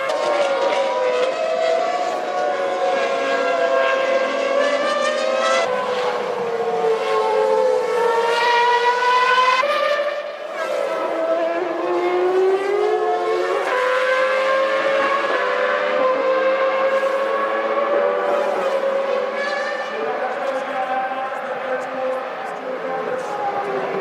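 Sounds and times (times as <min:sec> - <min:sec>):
racing car engines screaming: 0:00.0 - 0:24.0.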